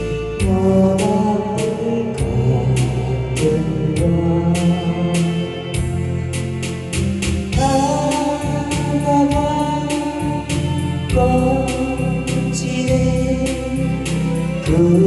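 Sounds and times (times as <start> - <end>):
held melody line: 0.0 - 15.0
steady drum beat: 5.8 - 15.0.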